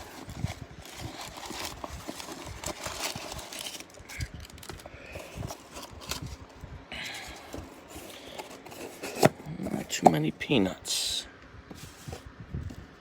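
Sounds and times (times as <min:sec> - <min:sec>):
rustling through packing peanuts: 0:00.0 - 0:10.7.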